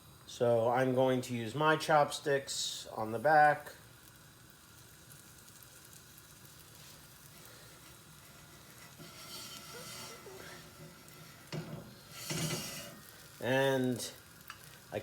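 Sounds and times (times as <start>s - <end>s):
eggs sizzling in a frying pan: 0.0s - 15.0s
chopsticks scraping a pan: 7.3s - 13.3s.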